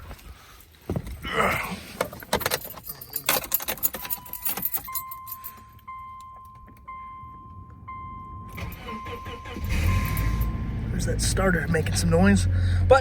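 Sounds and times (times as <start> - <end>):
car keys jangling: 1.9 - 7.2, 8.5 - 10.6
dashboard warning chime: 2.5 - 12.4.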